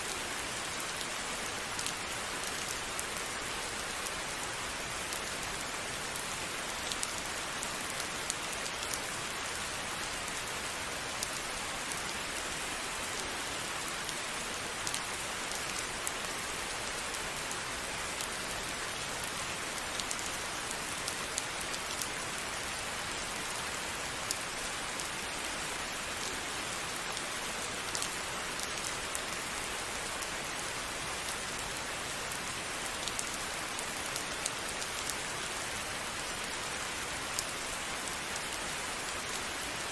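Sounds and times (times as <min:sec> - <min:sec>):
raindrops pattering on a surface: 0:00.6 - 0:25.4, 0:26.9 - 0:39.9.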